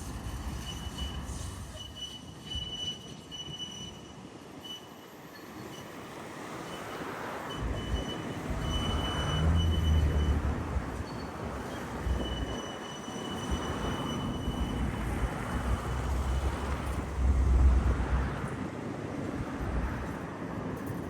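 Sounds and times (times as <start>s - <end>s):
tram rolling on rails: 0.0s - 21.0s
high-pitched wheel squeal: 0.5s - 6.0s, 6.7s - 17.2s.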